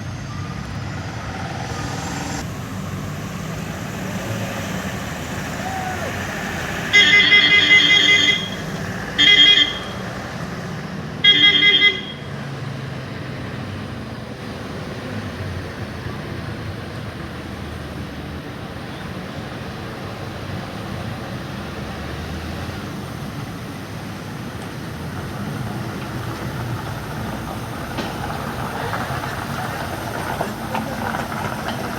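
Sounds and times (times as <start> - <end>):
road traffic noise: 0.0 - 31.9
truck diesel engines running: 0.0 - 31.9
vehicle horn blasts: 6.8 - 10.2, 11.2 - 12.4.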